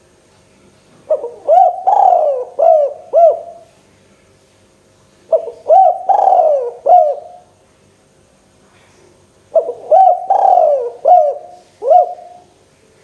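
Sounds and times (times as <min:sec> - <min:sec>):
dove cooing: 0:01.1 - 0:03.7, 0:05.3 - 0:07.5, 0:09.5 - 0:12.5.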